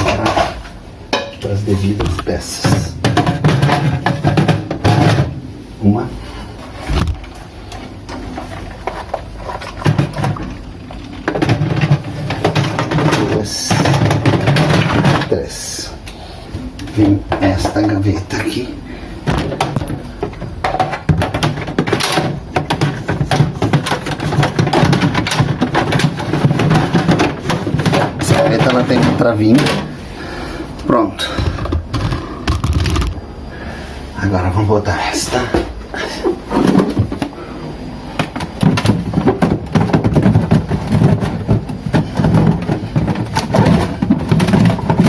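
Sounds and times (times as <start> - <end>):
plastic drawer knocking and rattling: 2.0 - 5.4, 11.2 - 15.3, 19.3 - 29.9, 36.5 - 37.4, 38.2 - 45.0.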